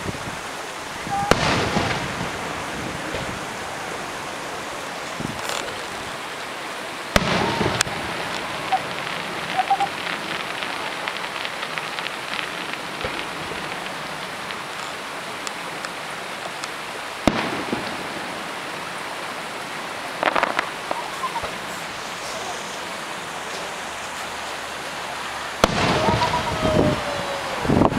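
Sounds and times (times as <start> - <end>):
firework crackling: 0.0 - 27.9
firework pops: 1.1 - 2.1, 5.2 - 5.8, 7.1 - 15.9, 16.5 - 18.1, 20.2 - 21.6, 25.6 - 26.6
firework bangs: 1.1 - 6.0, 7.1 - 15.0, 17.2 - 18.9, 20.1 - 23.7, 25.6 - 27.9.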